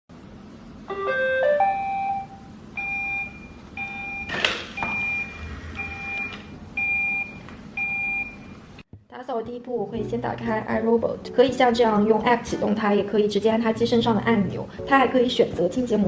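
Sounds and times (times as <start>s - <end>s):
two-note electronic beep: 0.9s - 4.2s
electronic melody of stepped tones: 0.9s - 4.3s.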